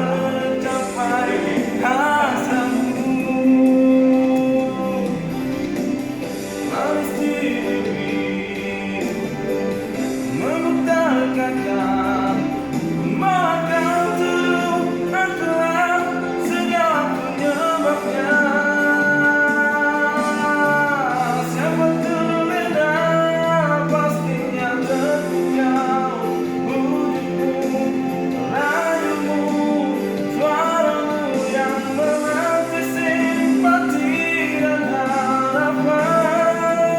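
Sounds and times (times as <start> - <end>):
instrumental backing: 0.0 - 36.9
person singing pop song: 0.0 - 36.9.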